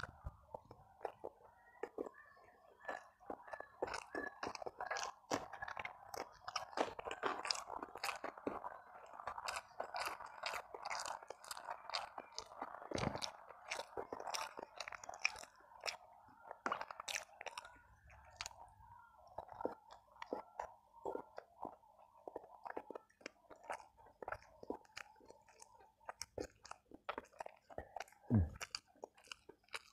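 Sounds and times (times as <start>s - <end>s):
chewing and crunching: 0.0s - 29.9s
wet mouth clicks: 19.3s - 29.9s.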